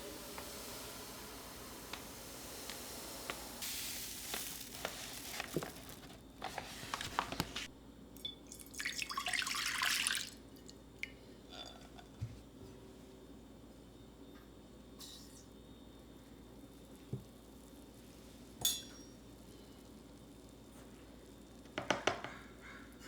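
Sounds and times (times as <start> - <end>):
water splashing in sink: 0.0 - 10.4.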